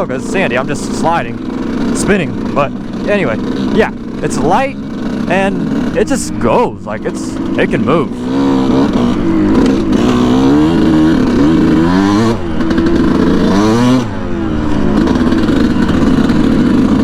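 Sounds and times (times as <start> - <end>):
two-stroke dirt bike revving: 0.0 - 17.0.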